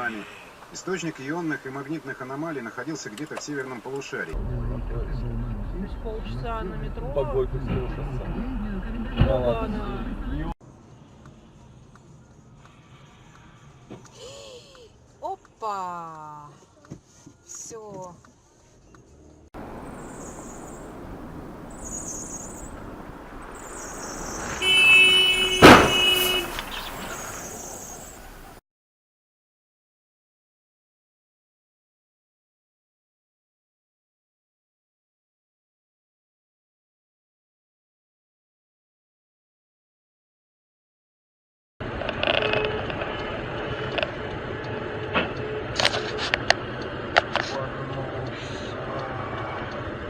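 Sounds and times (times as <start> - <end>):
car road noise: 0.1 - 14.2, 19.0 - 28.6, 41.8 - 50.0
car engine hum: 19.2 - 28.6
car horn blaring: 24.6 - 27.1
collision bang: 25.4 - 27.3.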